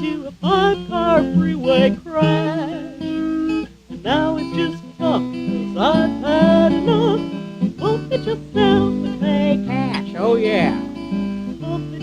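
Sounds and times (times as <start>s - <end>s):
woman singing: 0.0s - 10.8s, 11.6s - 12.0s
acoustic guitar strumming: 0.0s - 12.0s.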